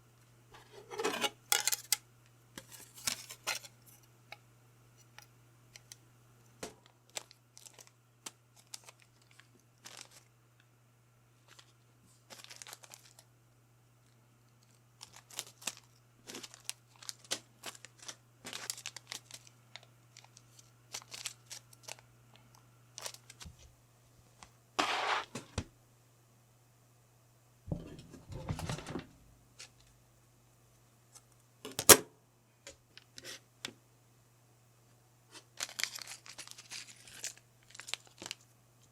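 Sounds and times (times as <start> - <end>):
faint steady hum: 0.0 - 38.9
plastic crinkling: 7.1 - 10.3, 11.4 - 13.3, 14.6 - 23.6, 35.3 - 38.5.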